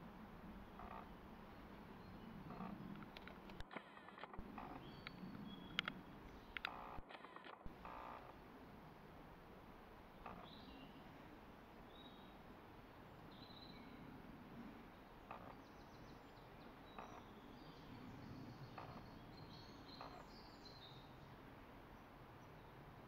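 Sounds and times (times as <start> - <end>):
soft clicks: 2.5 - 7.6
small birds chirping: 4.5 - 6.8, 10.2 - 11.1, 14.9 - 21.4.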